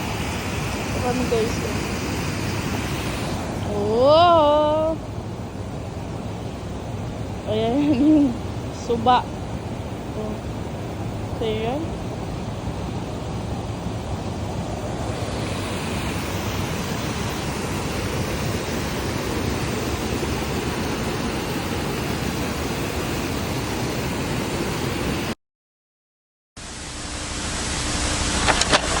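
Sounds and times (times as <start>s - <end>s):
river water rushing: 0.0s - 4.3s, 8.4s - 25.4s.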